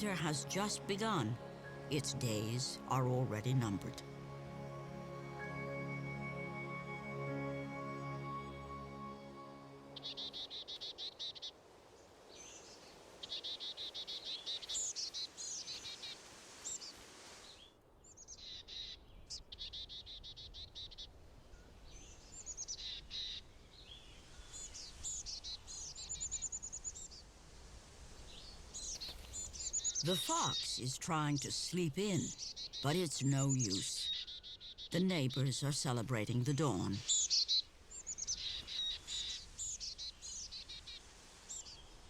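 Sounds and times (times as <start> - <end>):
small birds trilling: 10.0 - 11.6, 12.3 - 17.0, 17.6 - 27.4, 28.1 - 42.0.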